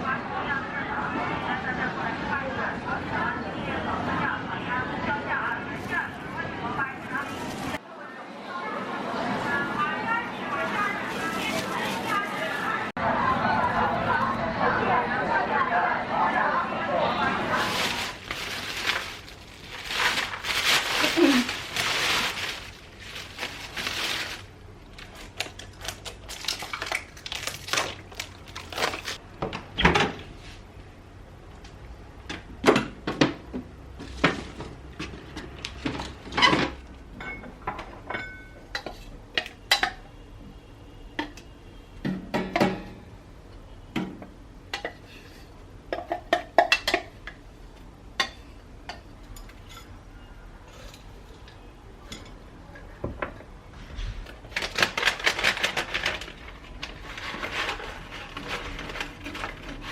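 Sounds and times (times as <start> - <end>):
dishes and utensils clinking: 34.2 - 40.0.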